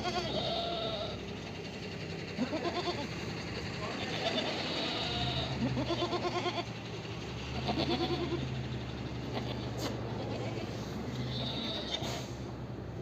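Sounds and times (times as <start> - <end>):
goats bleating: 0.0 - 1.2, 2.4 - 3.1, 3.9 - 6.8, 7.5 - 8.6, 9.2 - 12.2.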